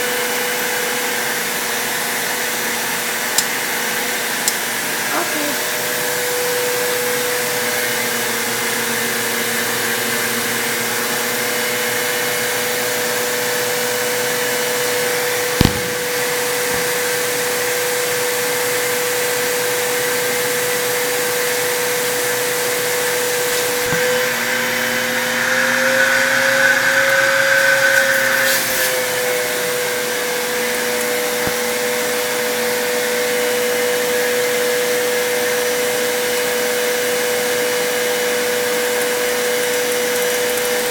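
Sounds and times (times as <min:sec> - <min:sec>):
vacuum cleaner running: 0:00.0 - 0:40.9
sharp knock: 0:15.6 - 0:17.1.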